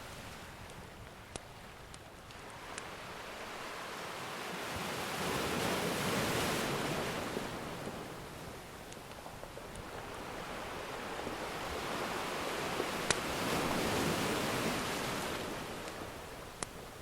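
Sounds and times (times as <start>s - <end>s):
wood fire crackling and popping: 0.6s - 2.9s, 8.8s - 10.0s, 12.9s - 13.8s, 15.8s - 16.9s
ocean wave washing: 1.6s - 17.0s.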